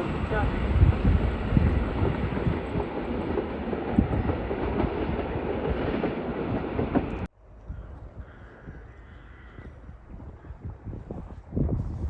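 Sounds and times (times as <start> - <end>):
train wheels rumbling: 0.0 - 7.9.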